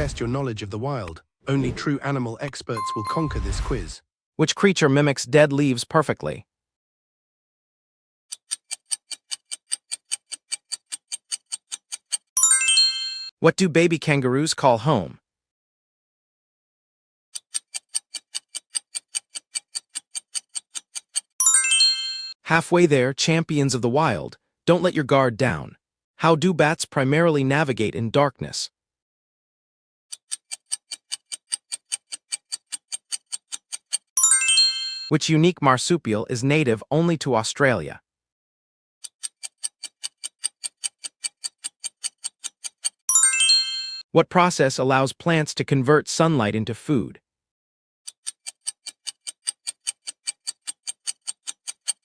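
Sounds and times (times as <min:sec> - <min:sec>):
bright ringing chime: 0:02.8 - 0:03.9, 0:12.4 - 0:13.3, 0:21.4 - 0:22.4, 0:34.2 - 0:35.1, 0:43.1 - 0:44.0
clock ticking fast: 0:08.3 - 0:12.4, 0:17.4 - 0:21.8, 0:30.1 - 0:34.8, 0:39.0 - 0:43.6, 0:48.1 - 0:52.0.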